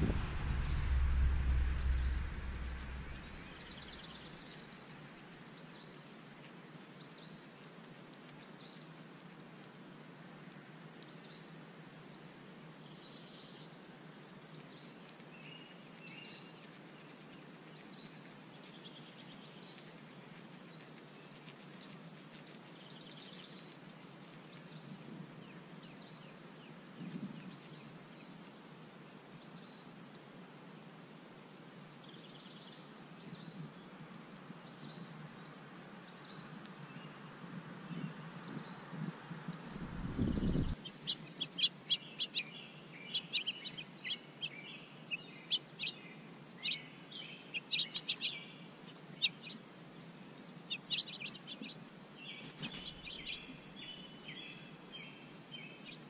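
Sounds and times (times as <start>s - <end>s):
soft low thump: 0.0s - 4.2s
small birds chirping: 0.0s - 10.1s, 14.5s - 30.0s, 34.6s - 56.0s
faint outdoor ambience: 0.0s - 56.0s.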